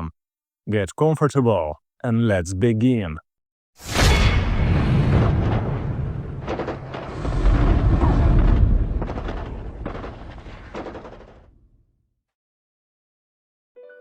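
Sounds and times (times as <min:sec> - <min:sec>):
explosions booming: 0:03.8 - 0:11.8
sharp cracks: 0:03.9 - 0:11.8.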